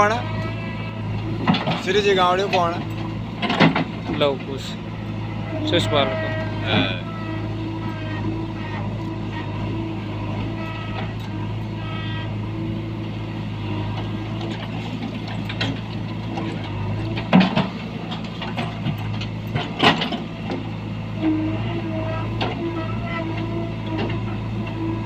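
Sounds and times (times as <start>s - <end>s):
heavy diesel engine running: 0.0s - 25.0s
loud clattering knocks: 1.4s - 4.4s, 17.2s - 17.8s, 18.4s - 20.6s.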